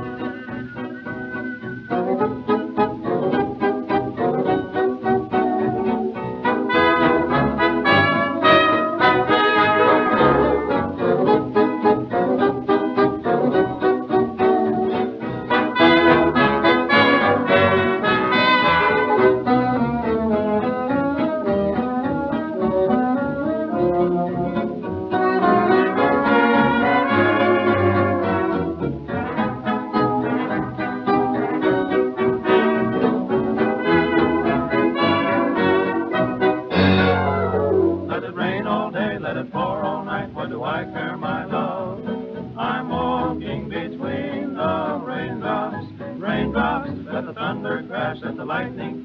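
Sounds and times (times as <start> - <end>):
dance orchestra with brass: 0.0 - 38.3.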